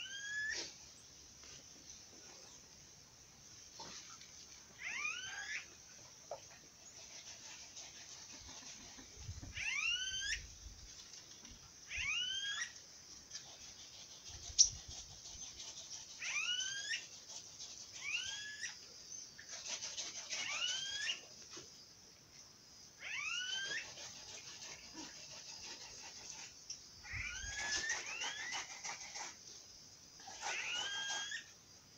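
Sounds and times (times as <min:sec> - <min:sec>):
bird whistling call: 0:00.0 - 0:00.7, 0:09.6 - 0:10.4, 0:11.9 - 0:12.7
steady high hiss: 0:00.0 - 0:15.2.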